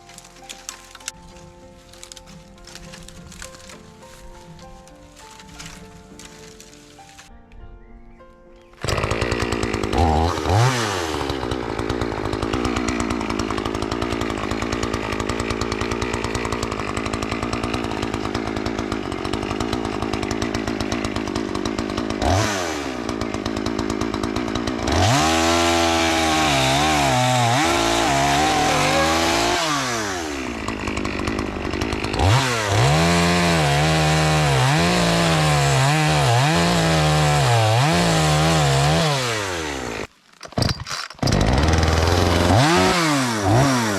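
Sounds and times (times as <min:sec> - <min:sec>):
chainsaw cutting wood: 0:00.0 - 0:07.3, 0:08.8 - 0:43.9.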